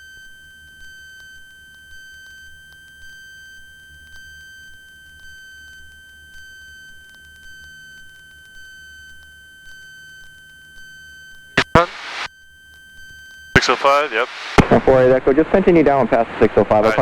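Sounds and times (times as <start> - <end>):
faint ticks: 4.1 - 11.4.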